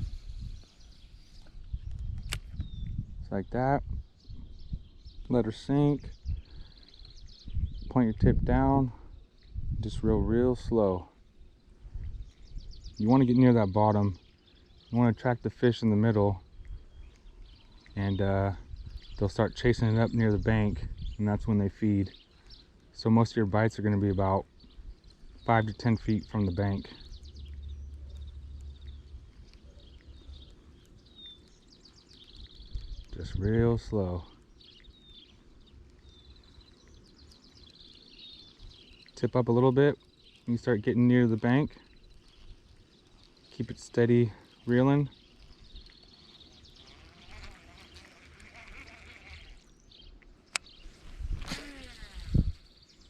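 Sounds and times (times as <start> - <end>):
small birds chirping and trilling: 0.0 - 53.0
sharp click: 2.2 - 2.7.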